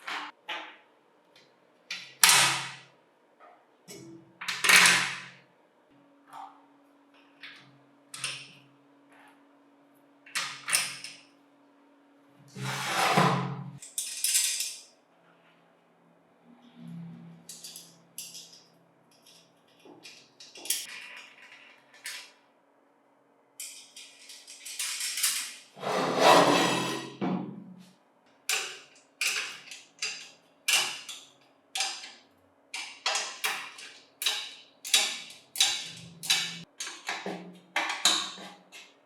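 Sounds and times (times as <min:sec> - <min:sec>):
metal parts clinking: 0:13.8 - 0:14.9, 0:17.5 - 0:22.3, 0:23.6 - 0:25.7
loud metal scraping: 0:25.8 - 0:27.2.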